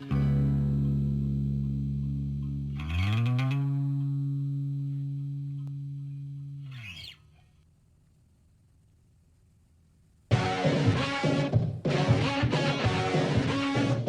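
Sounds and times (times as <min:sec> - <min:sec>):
distorted electric guitar note: 0:00.0 - 0:07.1.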